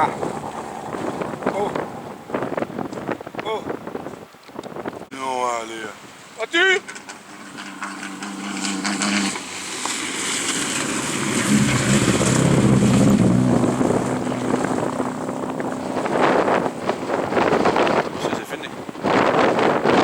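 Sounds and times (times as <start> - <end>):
rally car engine at high revs: 6.9 - 18.2.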